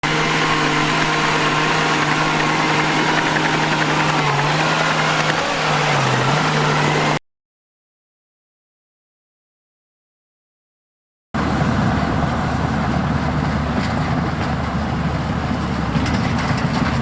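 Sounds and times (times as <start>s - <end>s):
heavy diesel engine running: 0.0s - 7.2s, 11.4s - 17.0s.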